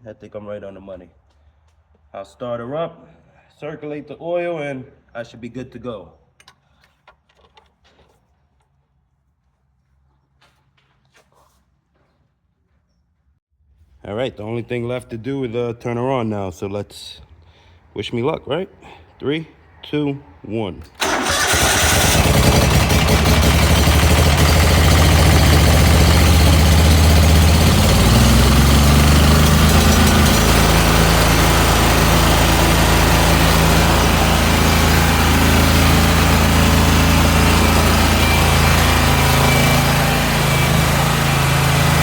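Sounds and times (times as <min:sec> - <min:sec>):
mower engine starting and running: 0:21.0 - 0:42.0.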